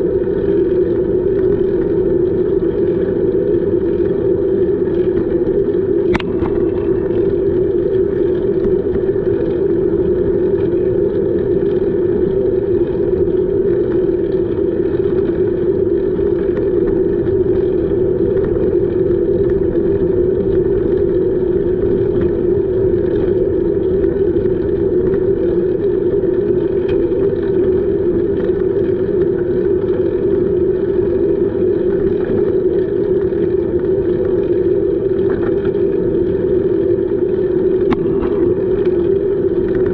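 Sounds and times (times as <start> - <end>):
steady even hum: 0.0 - 39.9
wind noise: 2.7 - 27.9.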